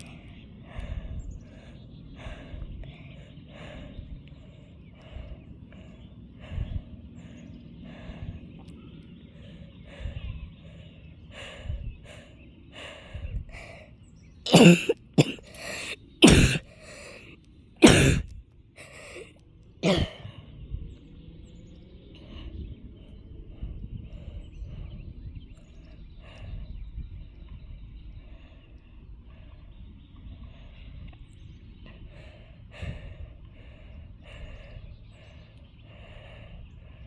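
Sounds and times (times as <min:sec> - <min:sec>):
person coughing: 0:14.5 - 0:20.2.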